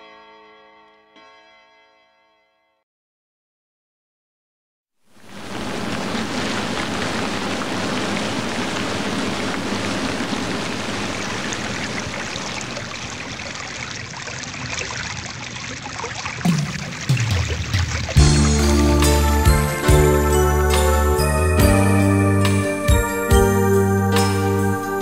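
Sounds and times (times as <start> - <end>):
rushing water: 5.1 - 25.0.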